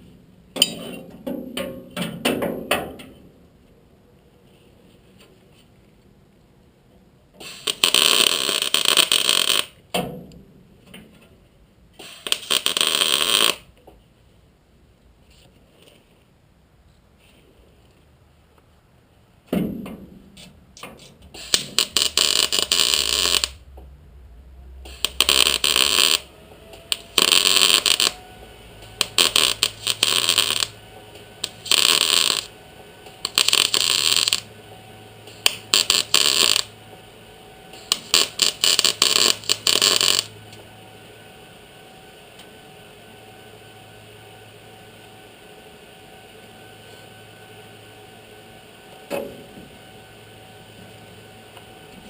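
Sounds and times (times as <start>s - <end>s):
welder crackling and sputtering: 7.3s - 9.9s, 11.9s - 13.9s, 20.4s - 23.9s, 24.8s - 40.9s.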